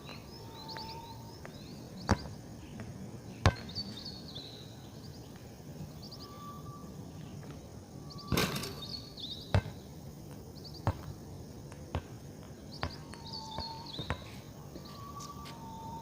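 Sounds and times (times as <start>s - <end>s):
birds chirping: 0.0s - 16.0s
steady whistle: 6.2s - 7.0s, 14.8s - 16.0s.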